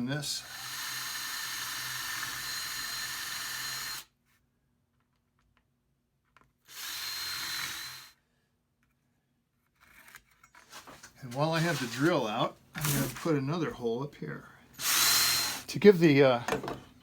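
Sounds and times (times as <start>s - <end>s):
power drill boring into wood: 0.4s - 4.1s, 6.7s - 8.2s, 12.8s - 13.2s, 14.8s - 15.7s.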